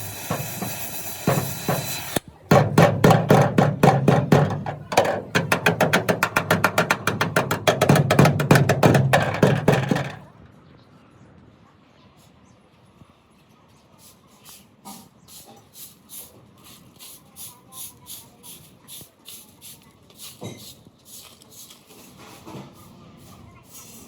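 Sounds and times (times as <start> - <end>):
rhythmic scraping strokes: 0.0 - 10.2
loud knock: 2.5 - 10.2.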